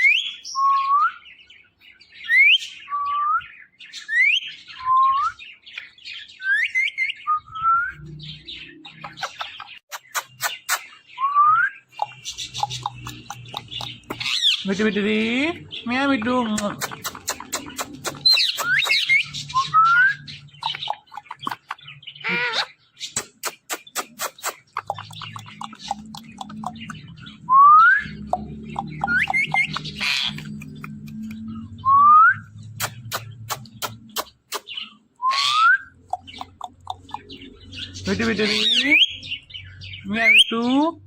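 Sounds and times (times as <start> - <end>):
sharp clicks: 12.0 - 14.4, 16.5 - 19.2, 23.2 - 27.2, 28.3 - 31.5, 32.7 - 34.8, 36.0 - 37.4.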